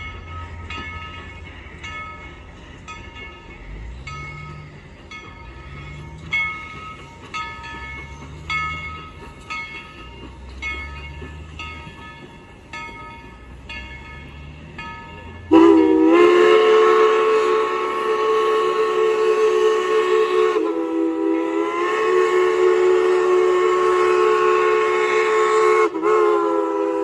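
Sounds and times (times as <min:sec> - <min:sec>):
low engine rumble: 0:00.0 - 0:18.5
locomotive bell ringing: 0:00.0 - 0:25.6
steam whistle blowing: 0:15.5 - 0:27.0.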